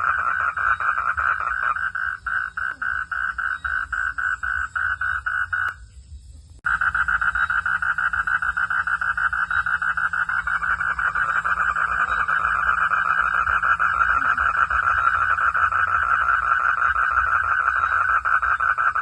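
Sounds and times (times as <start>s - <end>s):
frogs calling in pulsed chorus: 0.0s - 6.0s, 6.6s - 19.0s.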